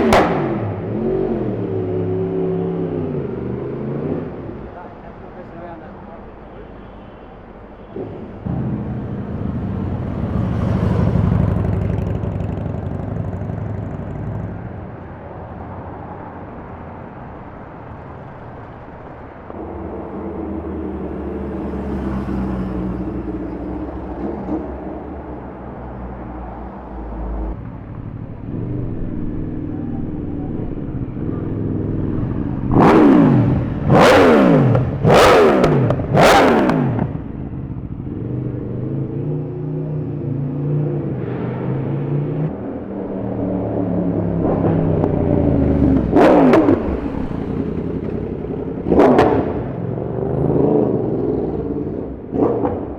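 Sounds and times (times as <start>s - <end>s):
motorcycle revving: 0.0s - 4.9s, 7.8s - 52.9s
traffic engines passing: 0.0s - 52.9s.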